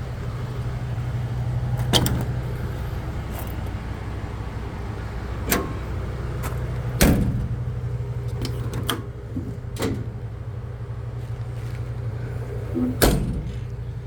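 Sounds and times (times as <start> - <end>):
truck engine idling: 0.0 - 14.0
knocks and clunks: 1.7 - 2.6, 5.4 - 12.0, 12.6 - 14.0.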